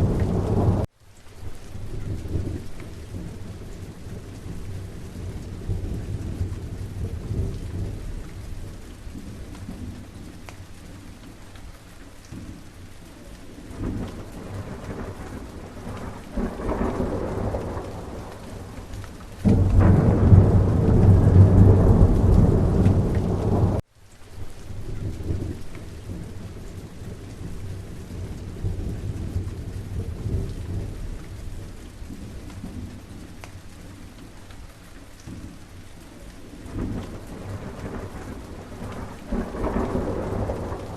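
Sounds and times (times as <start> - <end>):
thunder rumbling: 0.0 - 0.9, 1.7 - 10.4, 13.6 - 23.8, 24.7 - 33.3, 36.6 - 40.9
steady rain: 0.0 - 40.9.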